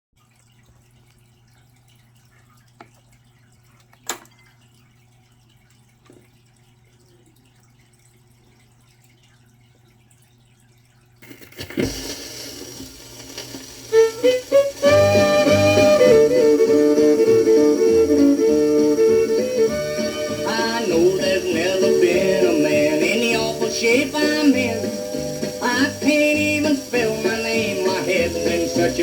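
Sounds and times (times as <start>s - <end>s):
record surface hiss: 11.2s - 29.0s
record player hum: 11.3s - 29.0s
plucked instrumental notes: 13.9s - 29.0s.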